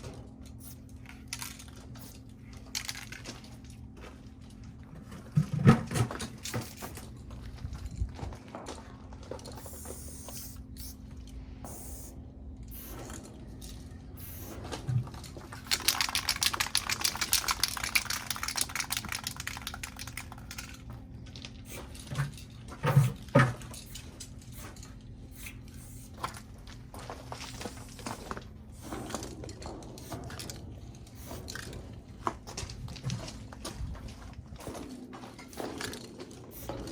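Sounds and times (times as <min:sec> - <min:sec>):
spray paint can hissing: 0:00.6 - 0:00.8, 0:09.6 - 0:11.0, 0:11.7 - 0:12.1, 0:12.7 - 0:13.0, 0:14.2 - 0:14.6, 0:15.6 - 0:20.6, 0:25.3 - 0:26.2.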